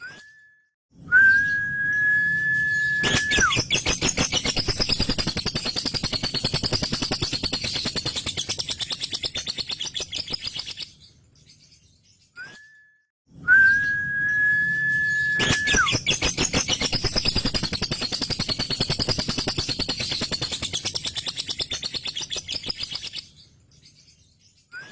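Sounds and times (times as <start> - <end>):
lovebird high whistle: 1.1 - 6.8, 13.5 - 19.5
lovebird rattling chatter: 3.0 - 10.9, 15.4 - 23.4.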